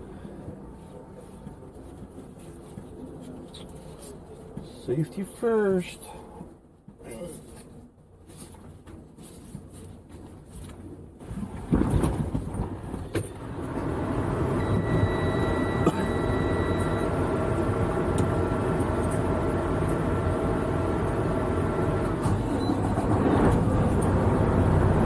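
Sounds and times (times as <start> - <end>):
diesel truck engine running: 13.3 - 25.0.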